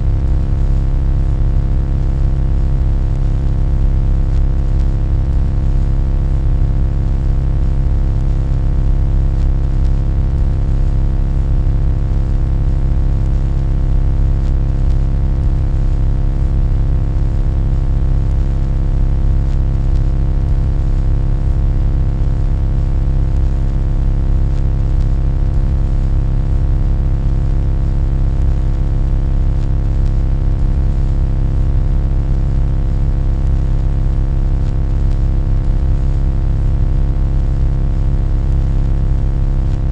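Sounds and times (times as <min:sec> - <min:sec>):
deep steady hum: 0:00.0 - 0:20.9, 0:21.5 - 0:26.1.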